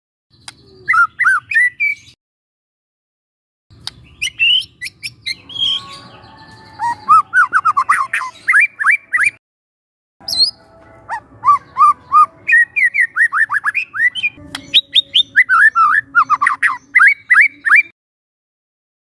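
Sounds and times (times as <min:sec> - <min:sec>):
bird singing whistled notes: 0:00.3 - 0:02.2, 0:04.0 - 0:09.4, 0:10.2 - 0:17.9.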